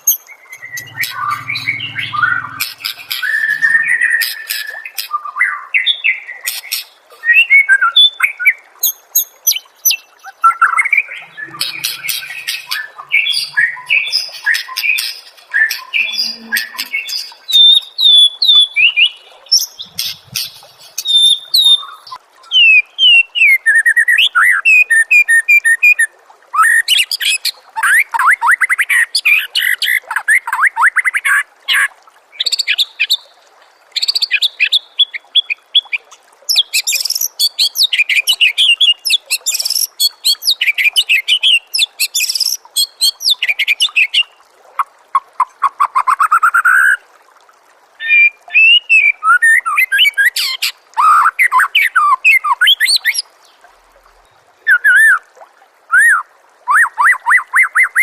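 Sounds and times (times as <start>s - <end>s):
songbird singing: 0.0s - 6.3s, 7.3s - 25.9s.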